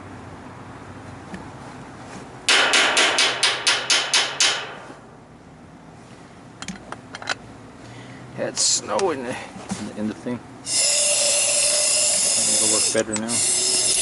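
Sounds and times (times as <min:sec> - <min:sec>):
part being rapped hard: 0:02.5 - 0:05.0.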